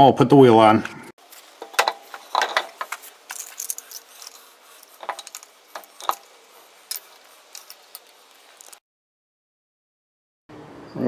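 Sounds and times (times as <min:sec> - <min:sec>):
metallic clinks and knocks: 0:01.2 - 0:08.8.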